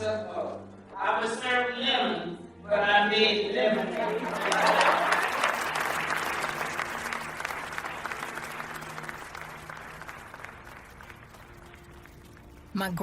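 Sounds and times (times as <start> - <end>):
crowd applauding: 3.7 - 12.7.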